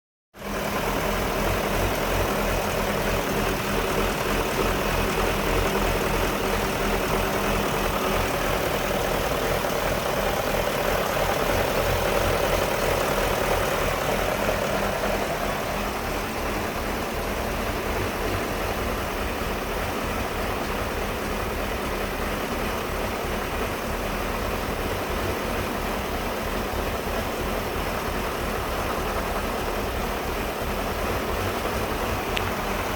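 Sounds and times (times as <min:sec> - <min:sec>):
car engine idling roughly: 0:00.3 - 0:32.9.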